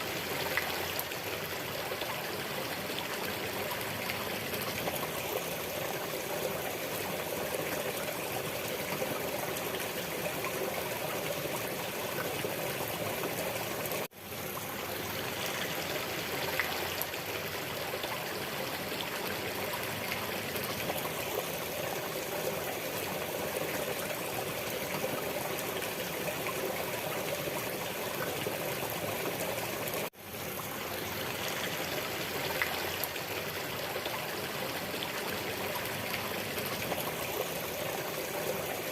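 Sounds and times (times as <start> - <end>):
running water stream: 0.0 - 38.9.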